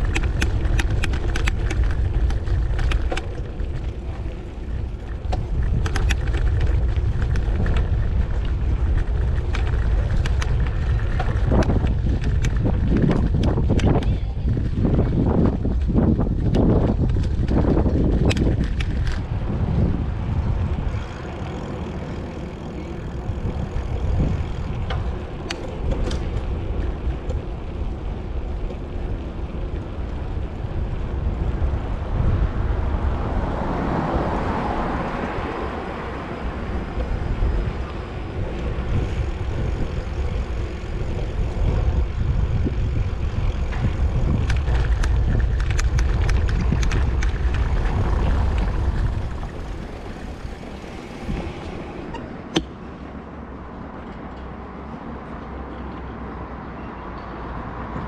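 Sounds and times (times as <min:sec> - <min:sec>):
short ticks and rattles: 0:00.0 - 0:14.1, 0:15.6 - 0:19.3, 0:38.5 - 0:51.8
wind on microphone: 0:00.0 - 0:54.1
bicycle tyres on road: 0:00.0 - 0:58.0
traffic noise: 0:00.0 - 0:58.0.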